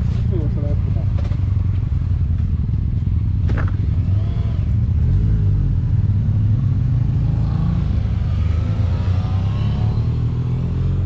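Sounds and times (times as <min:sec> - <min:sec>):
motorcycle engine running: 0:00.0 - 0:07.3.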